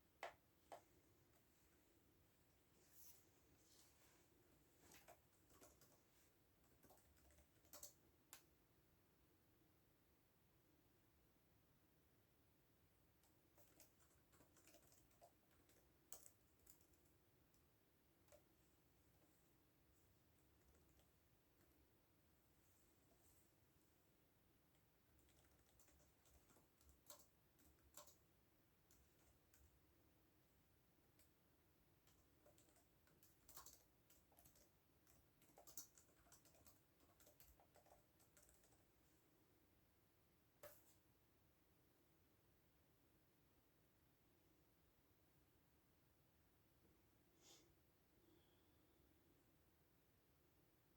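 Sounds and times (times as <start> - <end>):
typing on computer keyboard: 4.9 - 8.5, 13.2 - 17.6, 24.7 - 29.8, 32.0 - 38.9.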